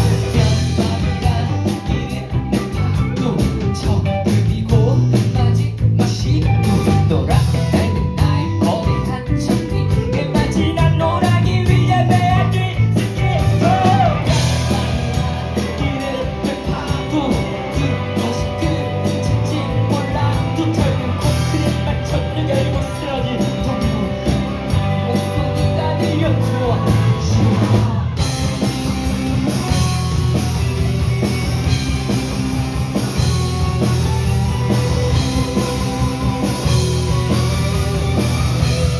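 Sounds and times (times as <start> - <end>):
lead vocal singing: 0.0 - 28.8
live rock band playing: 0.0 - 38.9.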